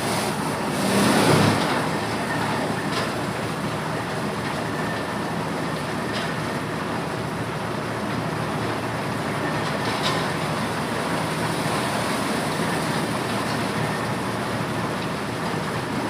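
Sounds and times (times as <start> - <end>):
corn thresher running: 0.0 - 16.0.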